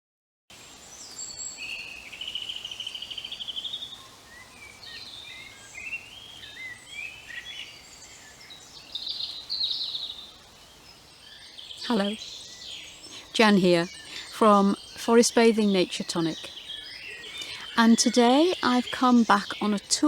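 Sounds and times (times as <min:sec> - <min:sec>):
birds singing and trilling: 0:00.6 - 0:20.0.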